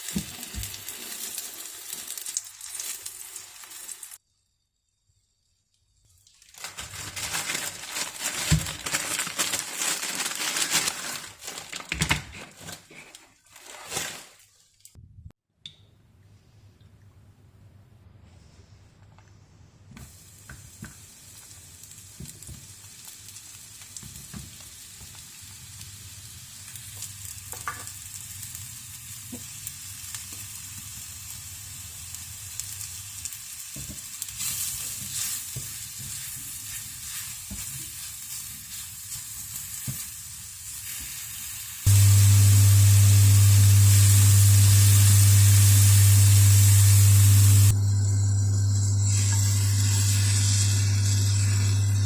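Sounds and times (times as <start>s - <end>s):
food sizzling in a frying pan: 0.0s - 4.2s, 20.0s - 47.8s, 48.4s - 52.0s.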